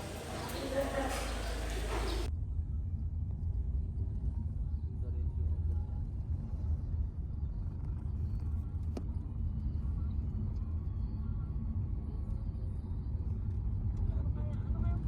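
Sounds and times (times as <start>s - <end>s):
vehicle rumble: 0.0s - 2.3s.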